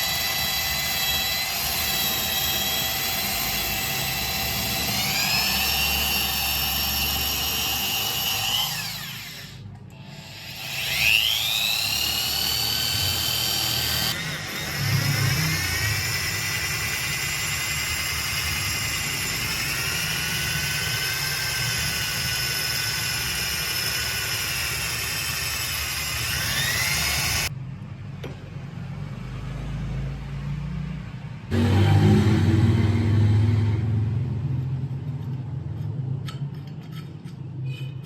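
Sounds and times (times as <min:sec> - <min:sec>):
power tool motor whine: 0:00.0 - 0:27.5, 0:31.5 - 0:33.8.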